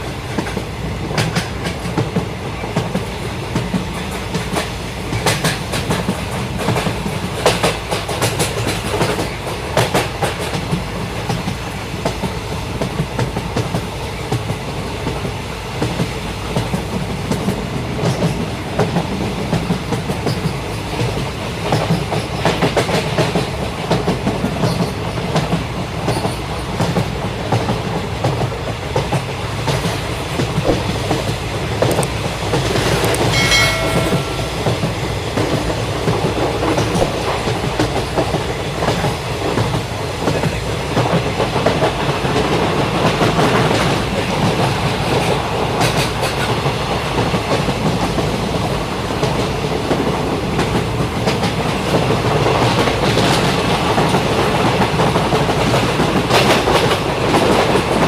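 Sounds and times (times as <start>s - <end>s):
train wheels clattering over rails: 0.0s - 58.0s
short high-pitched tone: 33.3s - 35.3s.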